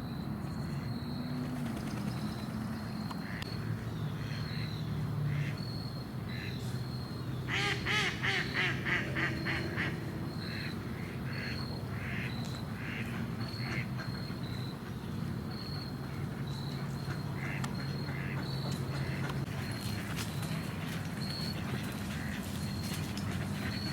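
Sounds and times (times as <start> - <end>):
ducks quacking: 17.1 - 20.0.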